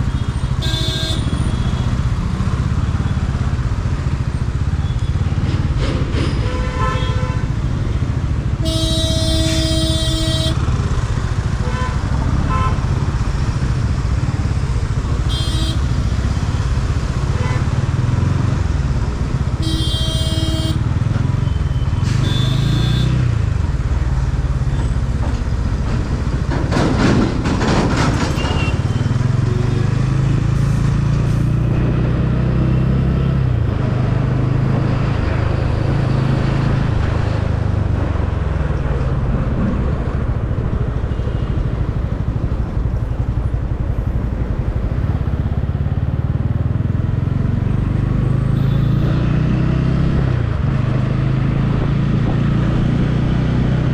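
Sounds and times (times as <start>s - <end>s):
road and wind noise: 0.0s - 53.9s
vehicle horns honking: 0.2s - 1.9s, 6.4s - 7.5s, 8.6s - 10.7s, 11.6s - 12.8s, 15.2s - 15.9s, 19.5s - 23.3s, 28.4s - 30.2s, 48.5s - 49.2s
motorcycle engine running: 28.8s - 30.6s.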